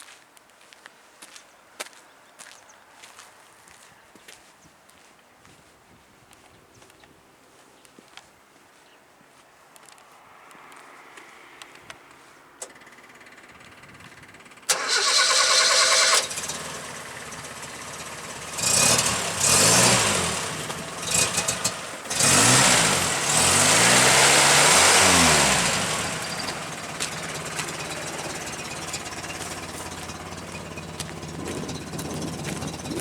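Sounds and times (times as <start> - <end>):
truck engine revving and idling: 12.8 - 33.0
starter motor cranking: 14.7 - 17.4.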